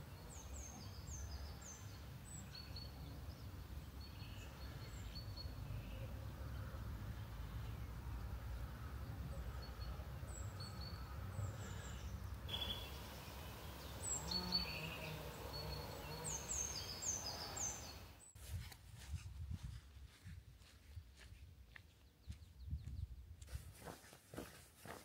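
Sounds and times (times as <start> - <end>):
small birds chirping: 0.0 - 18.4
footsteps on a path: 18.4 - 25.0.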